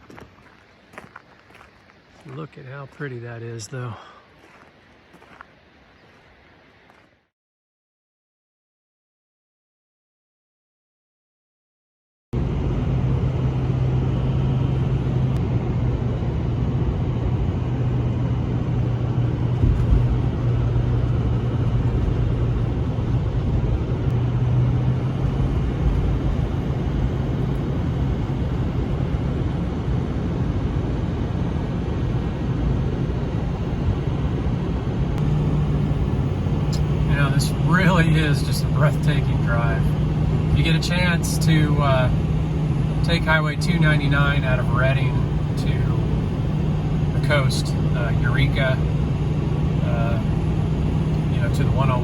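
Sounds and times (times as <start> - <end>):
road noise: 0.0 - 7.3, 12.4 - 52.0
low engine drone: 12.4 - 52.0.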